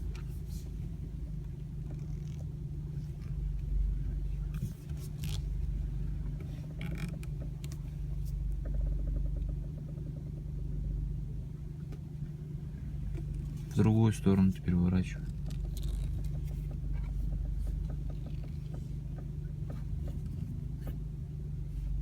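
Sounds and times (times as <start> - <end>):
car engine idling: 0.0 - 22.0
steering creaks or clicks: 1.4 - 10.1, 13.1 - 21.0.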